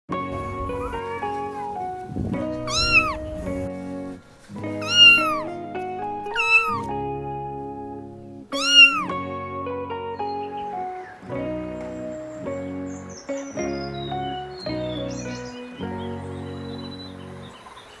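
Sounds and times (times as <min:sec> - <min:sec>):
background music: 0:00.1 - 0:17.8
cat meowing: 0:00.4 - 0:03.7, 0:04.6 - 0:07.0, 0:08.5 - 0:09.2.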